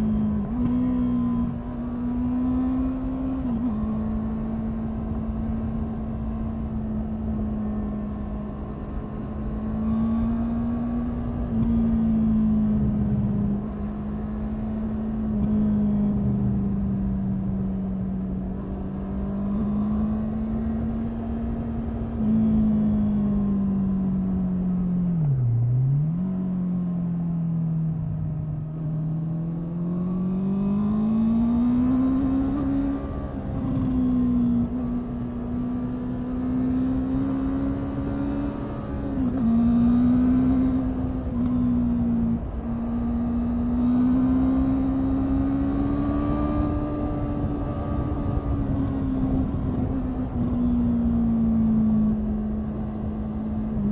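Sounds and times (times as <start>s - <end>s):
motorcycle engine revving: 28.7s - 53.9s.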